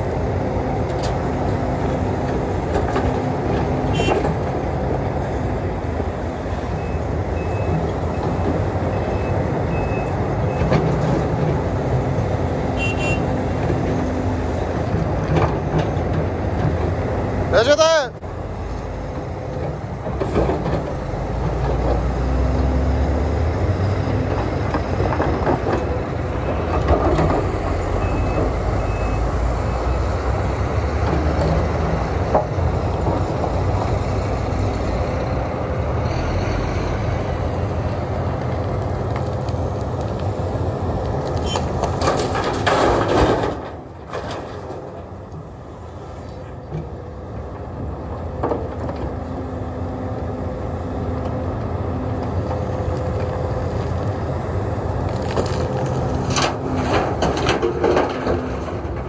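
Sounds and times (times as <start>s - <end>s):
excavator diesel engine and hydraulics: 0.0s - 59.0s
stones loaded into dump truck: 41.4s - 45.6s, 55.0s - 59.0s.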